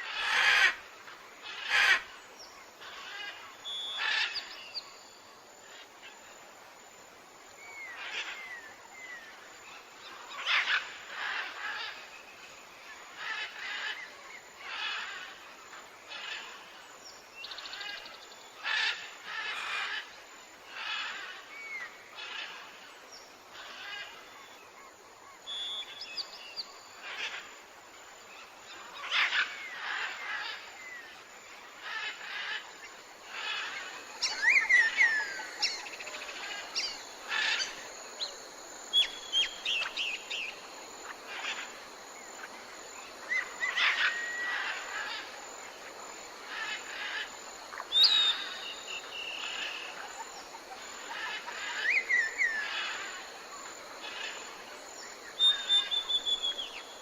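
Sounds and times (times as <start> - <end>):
faint outdoor hiss: 0.0 - 57.0
birds chirping and whistling: 47.9 - 49.6, 55.4 - 56.8.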